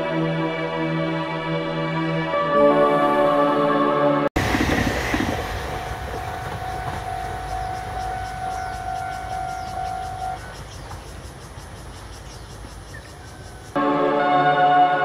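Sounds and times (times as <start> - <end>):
train rumbling past: 4.4 - 13.9.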